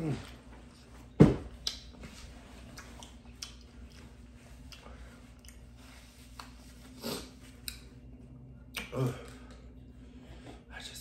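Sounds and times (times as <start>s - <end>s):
wet mouth clicks: 1.6s - 1.9s, 2.7s - 4.0s
chewing food: 2.5s - 6.6s.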